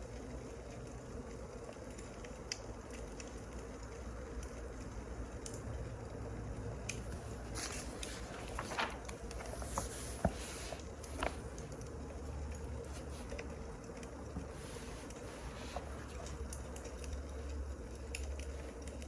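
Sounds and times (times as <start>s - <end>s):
low steady rumble: 0.0s - 19.0s
wood fire crackling and popping: 10.8s - 19.0s.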